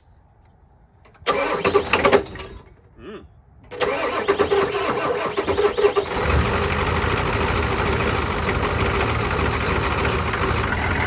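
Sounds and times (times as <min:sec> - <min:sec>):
engine cranking on starter: 0:01.2 - 0:02.7, 0:03.7 - 0:11.0
diesel engine running rough: 0:03.8 - 0:11.0.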